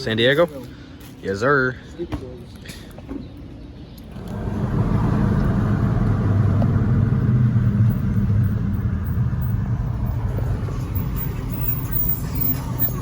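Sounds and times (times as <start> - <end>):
car engine rumbling: 3.8 - 13.0.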